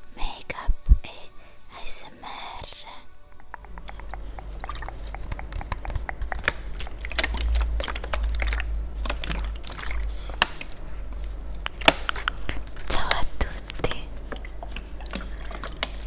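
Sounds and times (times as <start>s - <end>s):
steady low rumble: 3.5s - 15.6s
sharp clicks and crackles: 3.5s - 16.0s.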